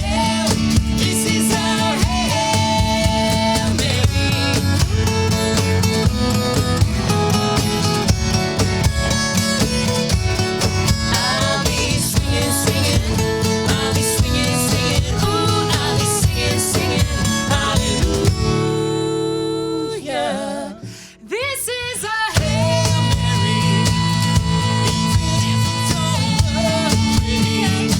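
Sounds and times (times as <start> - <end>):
acoustic guitar strumming: 0.0 - 21.4, 22.3 - 27.9
voices singing country song: 0.0 - 27.9.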